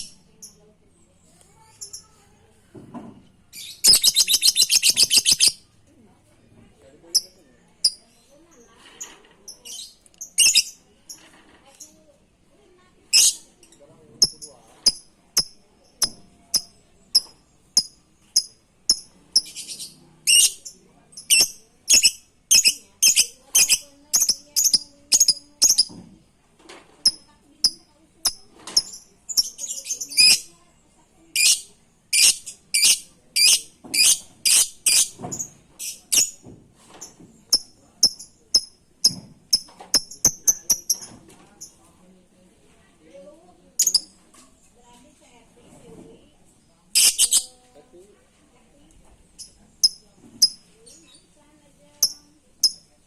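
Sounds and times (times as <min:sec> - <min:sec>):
lovebird chirping: 0:03.6 - 0:05.6, 0:09.7 - 0:10.8, 0:13.1 - 0:25.9, 0:27.0 - 0:30.5, 0:31.4 - 0:35.2, 0:35.8 - 0:36.4, 0:37.0 - 0:41.1, 0:43.8 - 0:44.2, 0:47.0 - 0:47.5, 0:49.4 - 0:51.3, 0:52.0 - 0:52.9.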